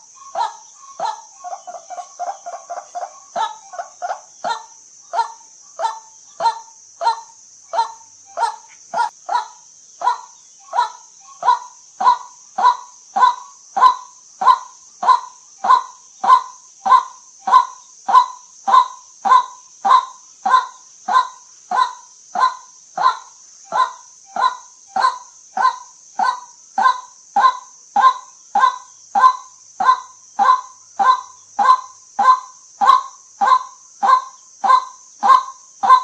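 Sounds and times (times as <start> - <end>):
steady high hiss: 0.0 - 36.0
waterhen calling: 0.0 - 36.0.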